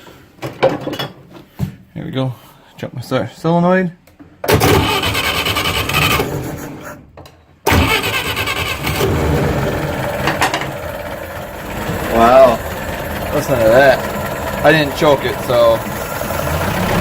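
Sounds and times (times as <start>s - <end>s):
engine cranking: 4.5s - 6.8s, 7.7s - 17.0s
boat engine running: 8.8s - 17.0s.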